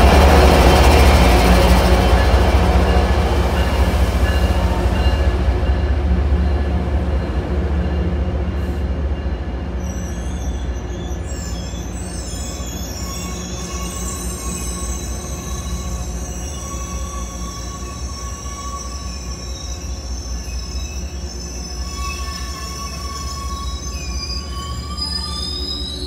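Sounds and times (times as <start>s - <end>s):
diesel locomotive engine hum: 0.0s - 26.0s
high-pitched wheel squeal: 9.8s - 26.0s.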